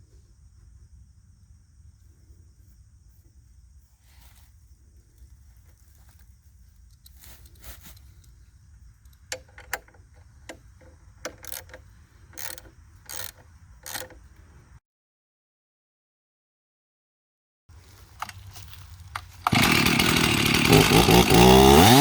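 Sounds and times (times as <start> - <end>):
metal parts clicking and clinking: 11.3 - 14.2.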